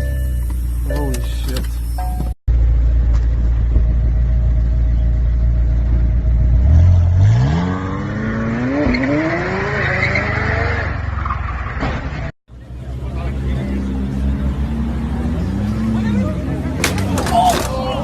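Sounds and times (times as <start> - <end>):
car engine revving: 3.7 - 11.7, 12.8 - 17.8.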